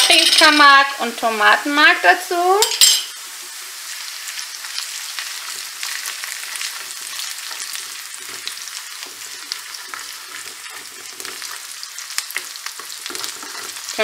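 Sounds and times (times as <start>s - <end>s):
onions sizzling in oil: 0.0s - 14.0s
wooden spoon scraping clay pot: 6.7s - 11.6s, 12.8s - 14.0s.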